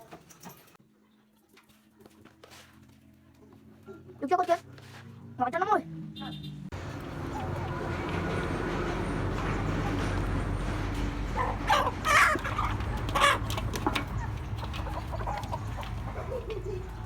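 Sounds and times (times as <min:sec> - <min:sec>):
chickens calling: 0:06.8 - 0:17.0.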